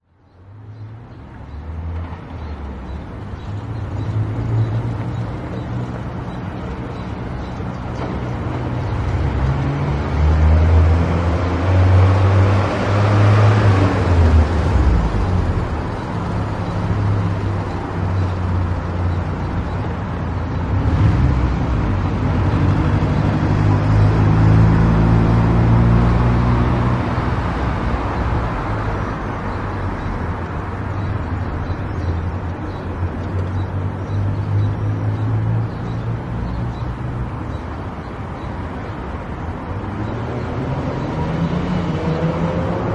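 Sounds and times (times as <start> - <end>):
tyre noise on road: 0.0 - 42.9
car engine: 3.1 - 31.6.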